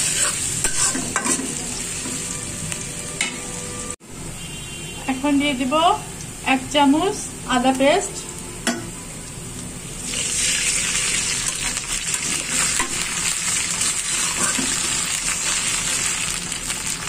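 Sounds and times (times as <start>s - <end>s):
metal spatula stirring: 0.0s - 1.5s, 13.8s - 15.0s
vegetables sizzling in hot oil: 0.0s - 3.9s, 9.8s - 17.0s.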